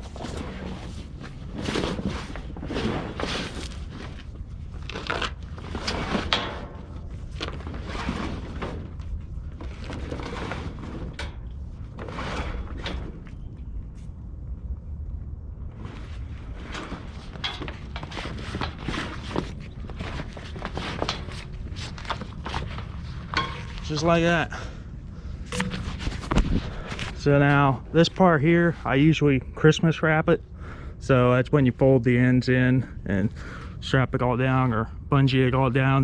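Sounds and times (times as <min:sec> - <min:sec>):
tarp rustling and crinkling: 0:00.0 - 0:13.3, 0:15.7 - 0:24.1
steady low rumble: 0:00.0 - 0:36.0.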